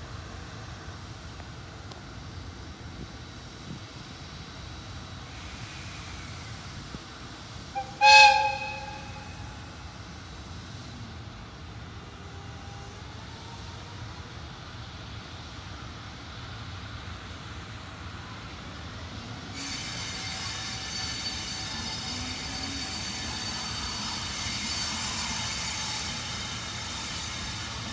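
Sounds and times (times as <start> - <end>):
train rumbling: 0.0 - 27.9
locomotive horn blast: 7.8 - 9.7.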